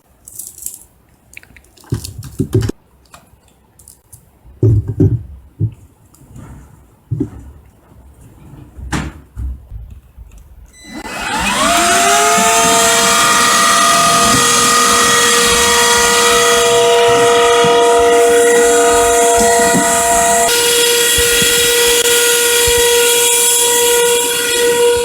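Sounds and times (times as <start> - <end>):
cordless vacuum cleaner whining: 10.7 - 25.0.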